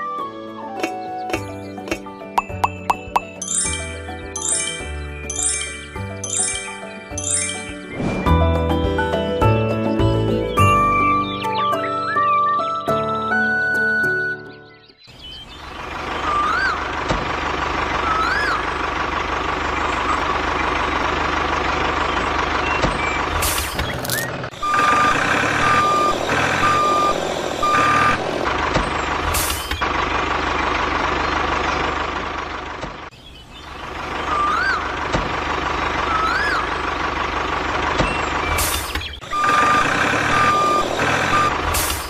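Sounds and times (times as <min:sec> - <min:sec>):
truck engine running: 0:15.2 - 0:42.0
reversing alarm beeping: 0:24.5 - 0:28.4, 0:39.2 - 0:41.8.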